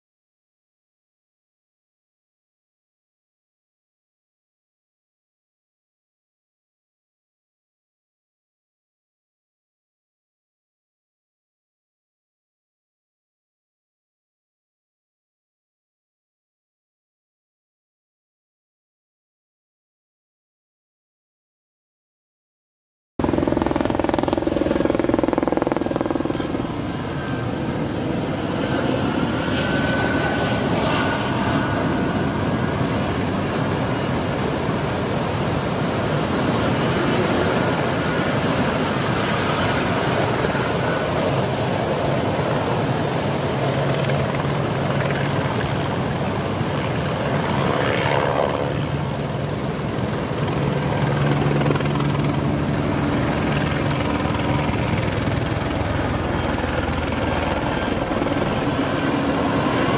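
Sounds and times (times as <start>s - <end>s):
engine drone: 23.2s - 59.9s
low hum: 51.0s - 59.9s.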